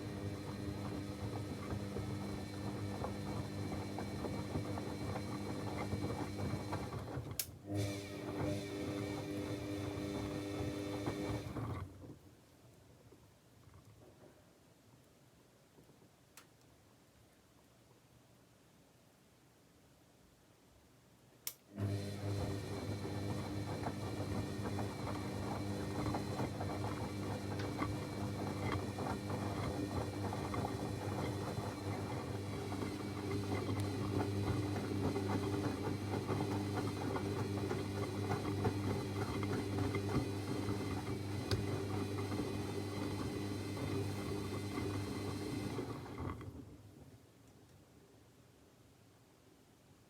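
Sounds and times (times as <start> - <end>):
washing machine hum: 0.0 - 12.2, 21.7 - 47.2
patter of water and laundry: 21.8 - 47.9.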